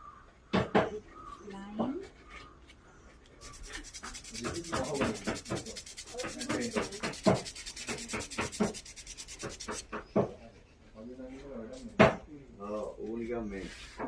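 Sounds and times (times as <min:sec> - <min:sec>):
rhythmic hand rubbing: 0:03.4 - 0:10.3.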